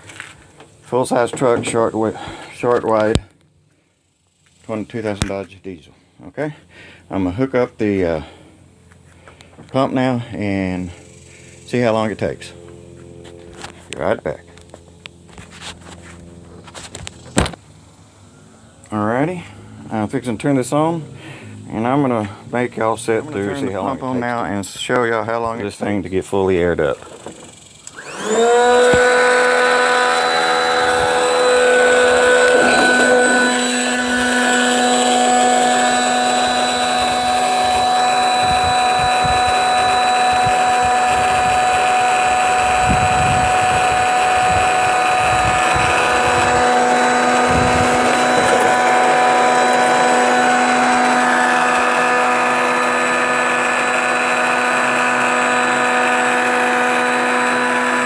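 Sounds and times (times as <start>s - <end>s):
electric air pump whining: 0.0s - 3.2s, 27.0s - 58.0s.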